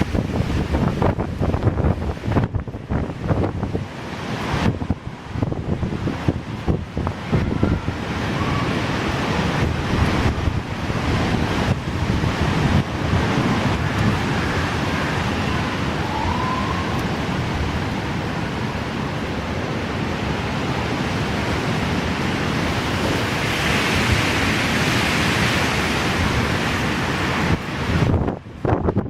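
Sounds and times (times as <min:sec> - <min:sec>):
wind buffeting microphone: 0:00.0 - 0:29.0
faint rising whistle: 0:13.8 - 0:17.3.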